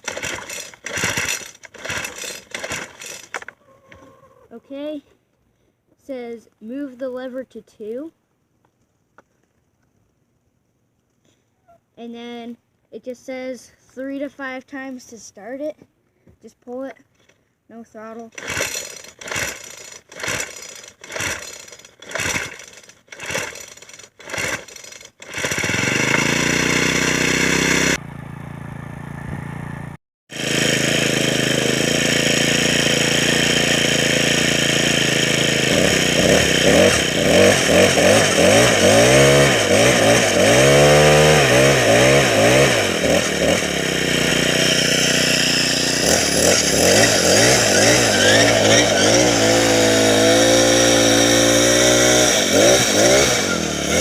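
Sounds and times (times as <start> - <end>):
string trimmer engine revving: 0.0 - 3.6, 18.2 - 29.4, 30.3 - 54.0
pull cord pulls: 0.0 - 4.1, 18.2 - 27.2.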